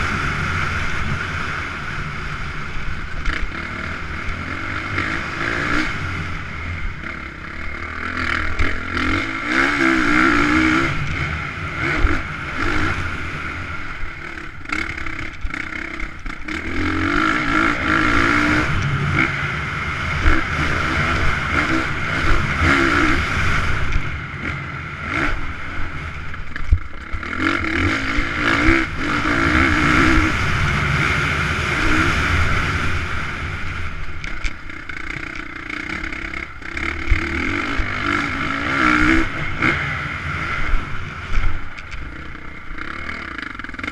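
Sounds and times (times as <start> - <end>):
motocross bike engines revving: 0.0 - 43.9
sharp clicks and clatter: 26.1 - 28.8, 34.0 - 37.8.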